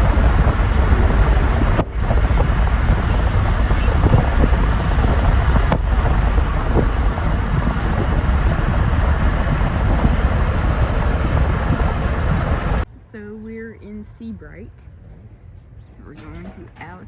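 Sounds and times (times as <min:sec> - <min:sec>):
wind buffeting microphone: 0:00.0 - 0:12.9.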